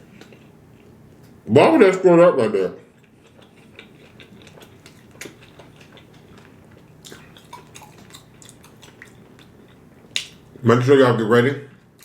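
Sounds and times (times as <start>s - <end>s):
person chewing food: 0.0s - 1.4s, 2.9s - 10.6s
low room hum: 0.0s - 12.0s.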